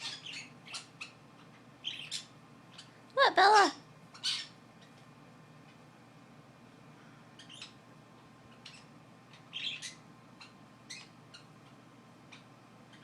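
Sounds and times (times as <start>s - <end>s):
faint bird chirps: 0.0s - 3.0s, 7.3s - 7.8s, 8.5s - 11.6s.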